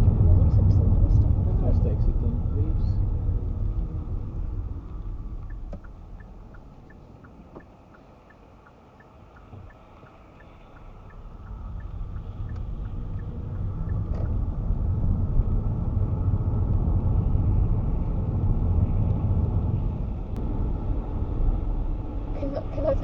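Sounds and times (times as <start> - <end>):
car road and engine rumble: 0.0 - 23.0
turn signal ticking: 3.6 - 14.8.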